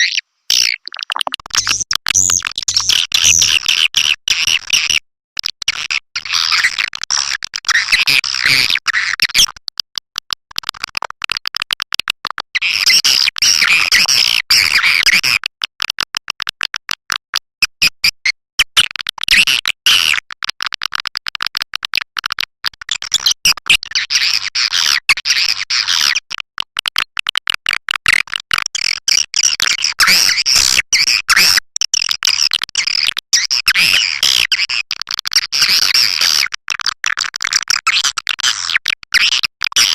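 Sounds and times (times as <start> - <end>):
high twittering bird chirps: 0.0 - 2.4.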